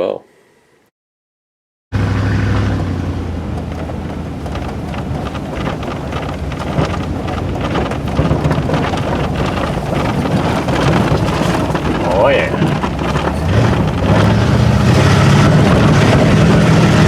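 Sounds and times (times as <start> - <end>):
steady rain falling: 3.5 - 17.0.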